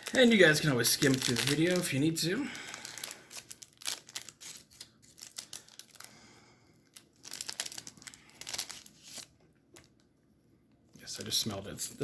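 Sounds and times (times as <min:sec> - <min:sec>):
plastic wrapper crinkling: 0:00.0 - 0:06.2, 0:06.8 - 0:10.1.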